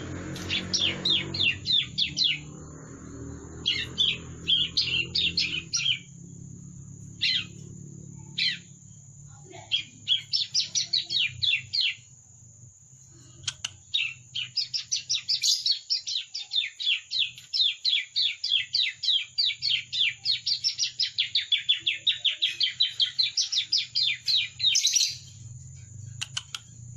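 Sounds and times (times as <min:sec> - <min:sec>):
bird song rapid sweeping notes: 0:00.0 - 0:08.8
bird chirps: 0:00.0 - 0:26.9.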